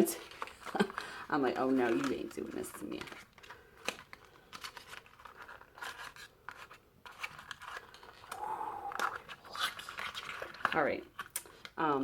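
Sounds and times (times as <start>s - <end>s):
packaging clicks and scrapes: 0.2s - 11.8s
packaging tearing: 3.0s - 11.7s.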